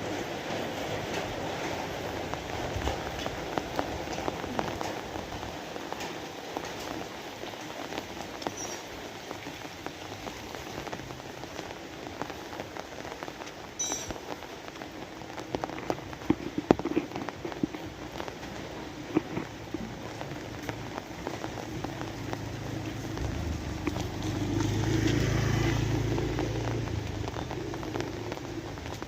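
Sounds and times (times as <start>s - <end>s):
rain drops striking a surface: 0.0s - 29.0s.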